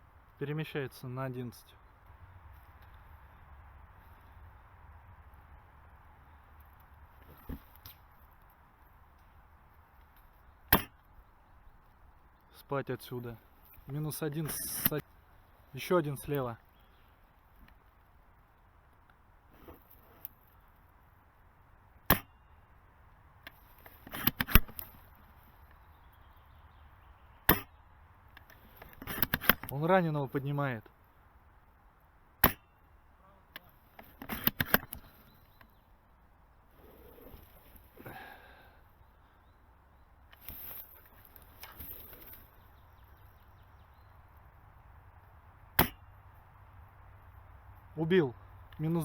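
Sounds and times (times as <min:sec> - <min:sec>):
rifle bolt clicks and knocks: 0:23.4 - 0:25.0, 0:28.3 - 0:29.8, 0:33.6 - 0:35.7
airsoft rifle shot: 0:45.8 - 0:46.0.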